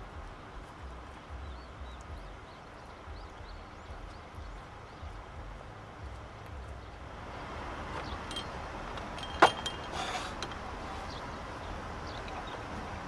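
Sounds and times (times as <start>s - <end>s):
low background rumble: 0.0s - 13.0s
objects being handled: 8.0s - 10.7s.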